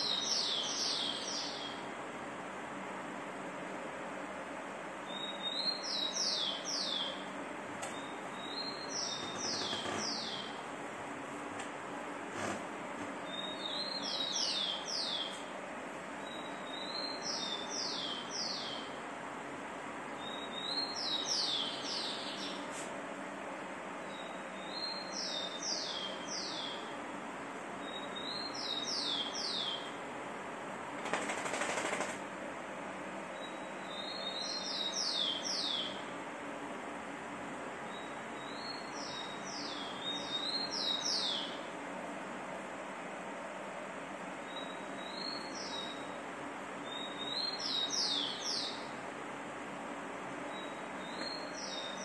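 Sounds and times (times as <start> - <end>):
small bird chirping: 0.0 - 1.8, 5.1 - 7.3, 7.9 - 10.6, 13.2 - 15.5, 44.5 - 46.2, 46.8 - 48.9, 50.5 - 52.0.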